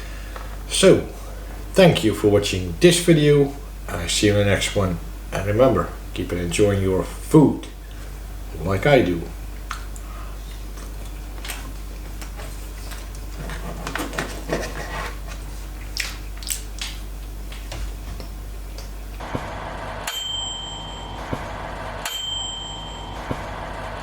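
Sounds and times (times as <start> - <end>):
bright bell ding: 20.1 - 21.2, 22.0 - 23.2.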